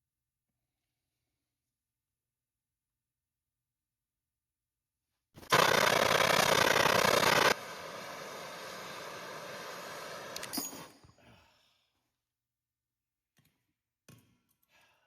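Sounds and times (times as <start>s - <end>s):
electric drill running: 5.4s - 11.0s
drill clicks: 5.5s - 10.9s.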